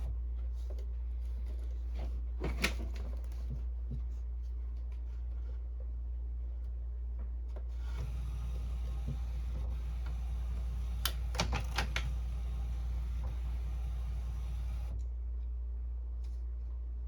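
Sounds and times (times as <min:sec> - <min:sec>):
inkjet printer running: 0:07.8 - 0:15.0
printer clicks: 0:07.9 - 0:15.0.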